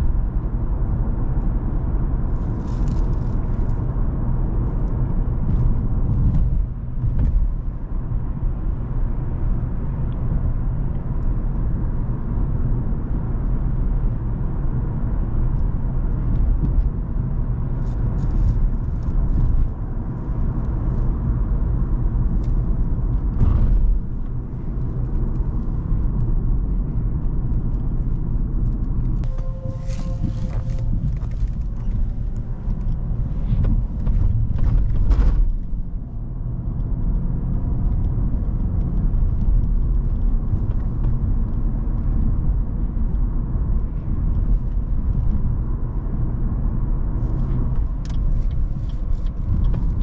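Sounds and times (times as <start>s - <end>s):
tyre and road noise: 0.0s - 50.0s
car engine running: 17.6s - 36.0s.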